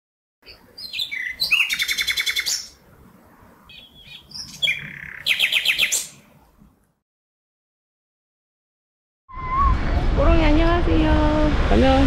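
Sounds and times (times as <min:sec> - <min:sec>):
bird song with trill: 0:00.4 - 0:02.8, 0:03.7 - 0:06.3.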